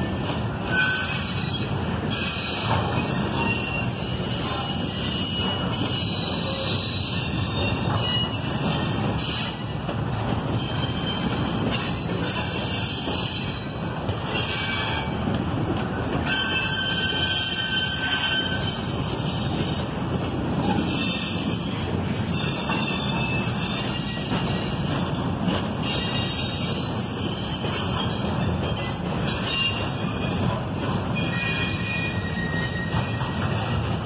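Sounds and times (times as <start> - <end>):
train wheels rumbling on rail: 0.0 - 34.0
high-pitched wheel squeal: 0.6 - 9.7, 10.6 - 13.7, 16.2 - 19.6, 25.8 - 30.4, 31.1 - 33.8.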